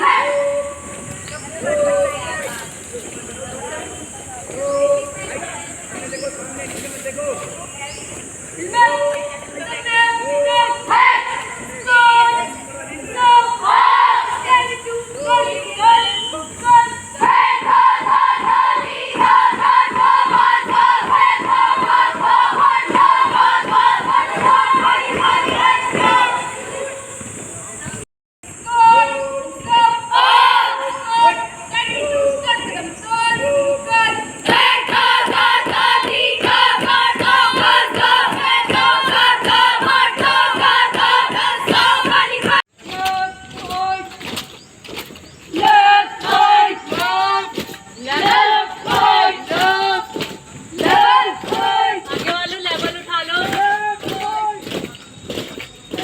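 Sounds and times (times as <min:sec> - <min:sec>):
voices calling out: 0:00.0 - 0:56.0
group singing in unison: 0:16.2 - 0:26.9, 0:34.4 - 0:42.7, 0:45.6 - 0:52.3
steady beat: 0:45.6 - 0:54.8.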